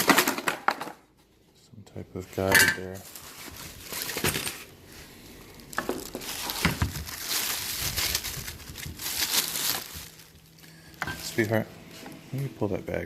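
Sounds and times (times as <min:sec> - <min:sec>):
plastic packaging crinkling: 0:02.9 - 0:11.6.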